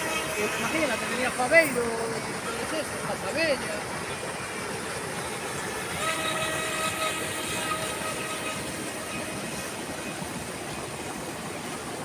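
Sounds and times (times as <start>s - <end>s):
small electric motor whining: 5.8s - 9.8s.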